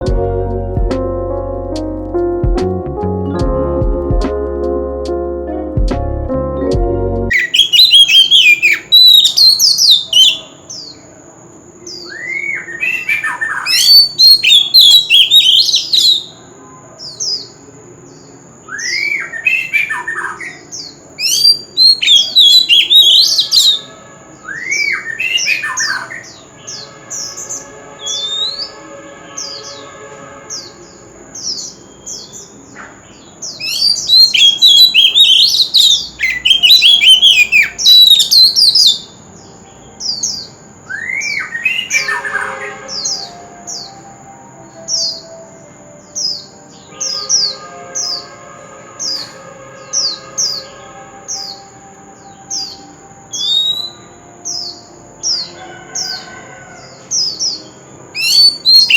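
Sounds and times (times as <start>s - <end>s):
bird whistled song: 7.3s - 11.0s, 11.8s - 16.4s, 18.2s - 28.8s, 30.5s - 44.1s, 46.0s - 48.4s, 49.0s - 58.9s.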